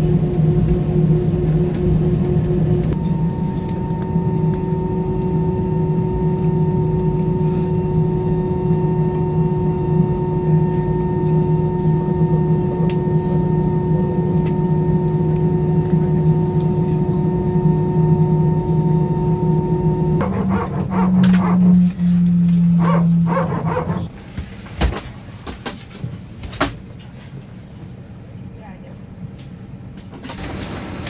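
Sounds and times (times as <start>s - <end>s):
airplane cabin drone: 0.0s - 24.8s
whining tones: 2.8s - 24.1s.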